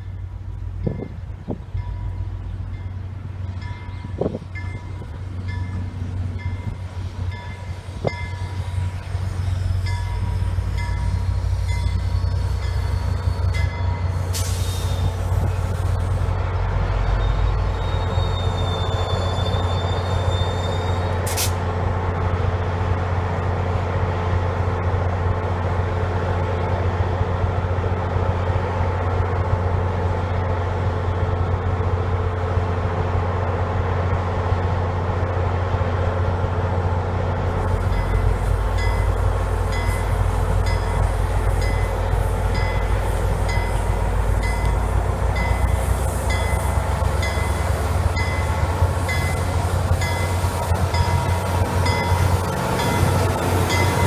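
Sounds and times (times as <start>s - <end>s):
diesel locomotive engine drone: 0.0s - 54.0s
train rumble: 0.0s - 54.0s
crossing bell dinging: 9.8s - 14.2s, 37.8s - 54.0s
burst of hiss: 14.1s - 16.1s
brief high squeal: 17.2s - 21.5s.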